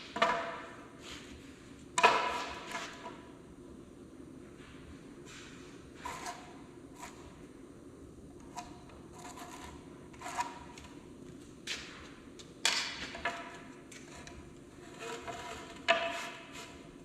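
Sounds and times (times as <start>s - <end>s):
knocks and clatter in workshop: 0.0s - 0.8s, 2.0s - 3.2s, 11.6s - 16.9s
faint steady hum: 0.0s - 17.0s.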